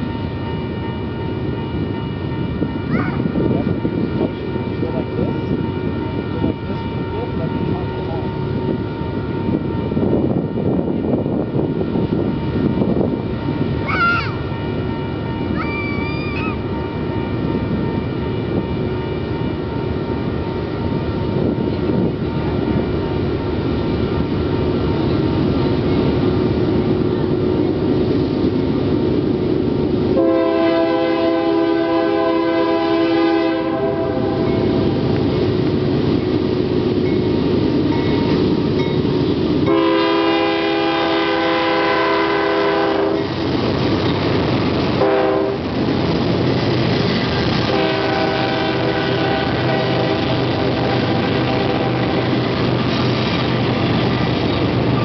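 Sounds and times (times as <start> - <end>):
diesel locomotive rumble: 0.0 - 55.0
train air horn chords: 30.2 - 34.7, 39.7 - 43.3, 45.0 - 45.7, 47.5 - 52.4.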